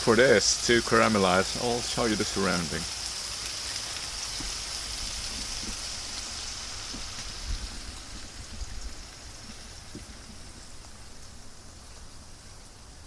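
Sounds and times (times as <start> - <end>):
onions frying in hot oil: 0.0 - 13.0
small oil pops: 6.8 - 7.3.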